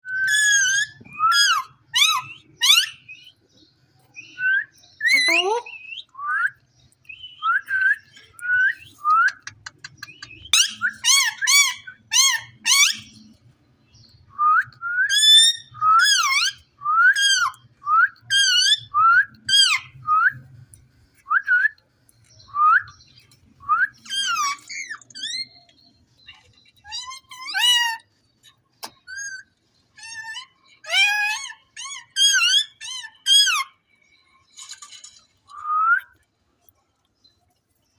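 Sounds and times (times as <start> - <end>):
harsh parakeet calls: 9.4 - 13.3, 26.8 - 28.1.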